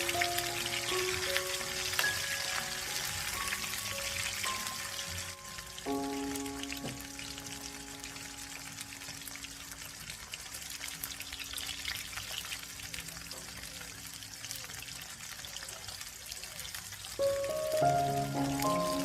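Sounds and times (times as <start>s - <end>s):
music: 0.0s - 10.0s, 17.2s - 19.0s
chicken sizzling in hot oil: 0.0s - 19.0s.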